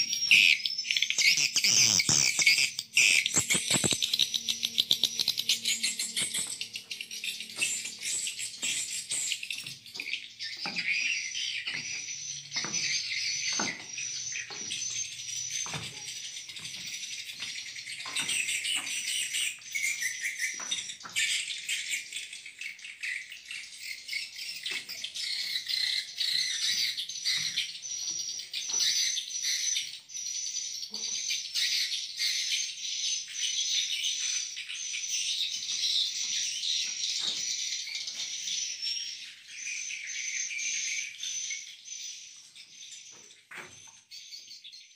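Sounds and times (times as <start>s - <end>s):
swiftlets chirping: 0.0s - 10.4s.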